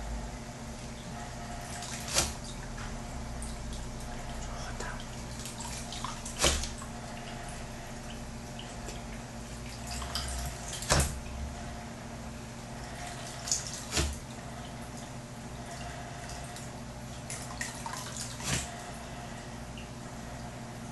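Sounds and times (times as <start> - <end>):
aquarium vacuum hum: 0.0 - 20.9
water dripping and splashing: 1.7 - 11.4, 12.8 - 18.9.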